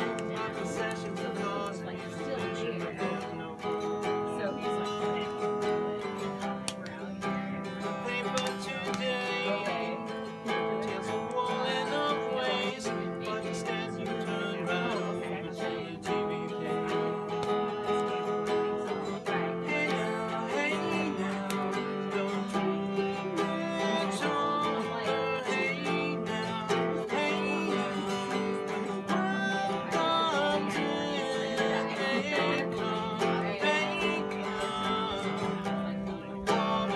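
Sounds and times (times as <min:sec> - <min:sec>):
acoustic guitar folk tune: 0:00.0 - 0:36.9.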